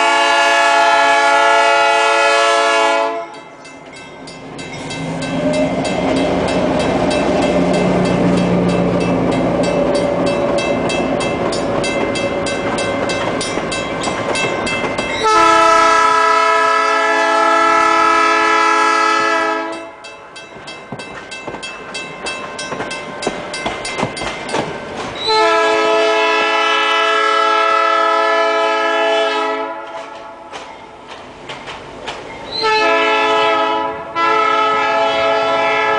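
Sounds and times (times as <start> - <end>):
locomotive air horn blasts: 0.0 - 3.5, 15.2 - 20.0, 25.2 - 30.5, 32.6 - 35.9
diesel locomotive engine: 0.0 - 35.9
wheels clicking over rail joints: 3.3 - 15.4, 19.8 - 25.4, 29.8 - 32.6.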